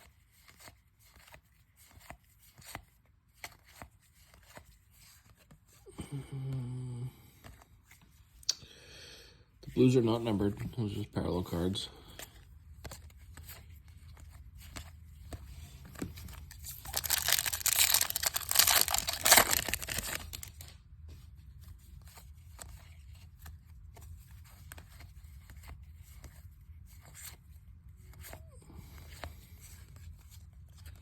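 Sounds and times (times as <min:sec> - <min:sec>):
wrapper tearing and crinkling: 0:16.2 - 0:20.7.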